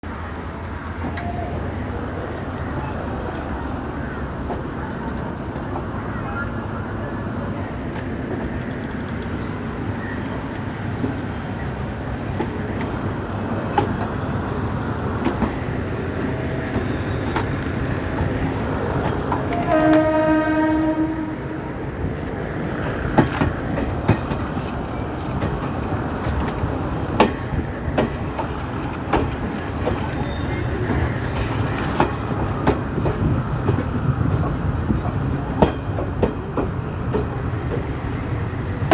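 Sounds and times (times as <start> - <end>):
train knocks and clacks: 0.0 - 38.9
train rumbling: 0.0 - 38.9
train horn: 19.5 - 21.7.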